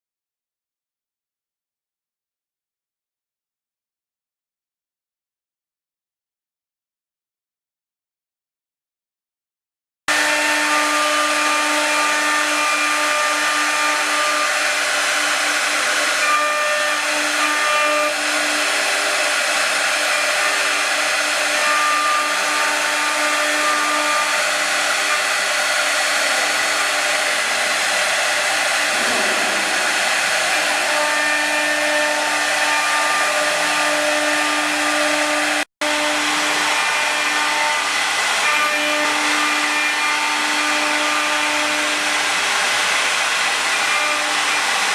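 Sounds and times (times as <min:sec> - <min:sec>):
cnc router spindle whine: 0:10.1 - 0:44.9.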